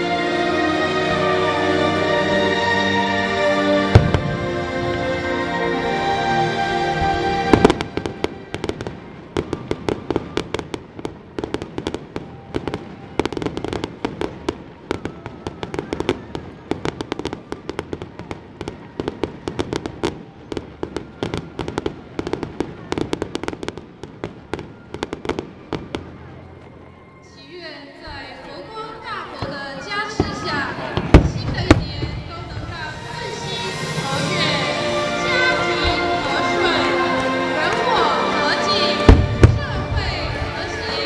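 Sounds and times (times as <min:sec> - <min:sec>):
fireworks bangs and crackles: 0:03.9 - 0:05.1, 0:07.0 - 0:27.0, 0:29.4 - 0:41.0.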